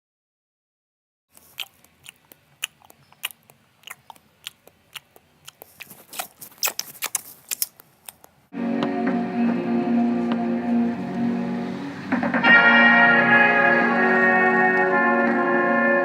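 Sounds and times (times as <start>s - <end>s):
crunchy food being chewed: 1.3s - 8.4s.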